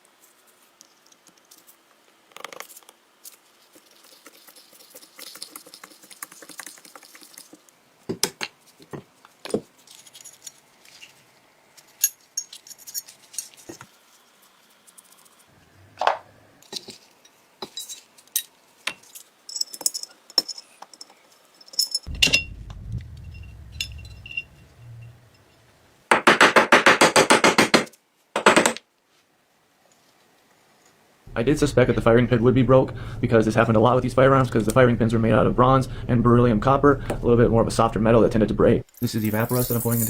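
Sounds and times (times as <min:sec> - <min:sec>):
loud fast rattle: 0:22.1 - 0:25.4.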